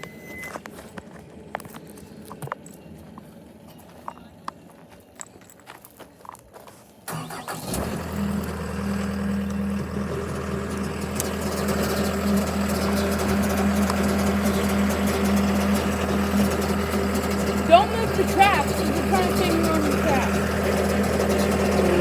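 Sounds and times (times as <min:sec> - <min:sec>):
diesel engine cranking: 0:07.0 - 0:22.0
diesel engine idling: 0:07.0 - 0:22.0.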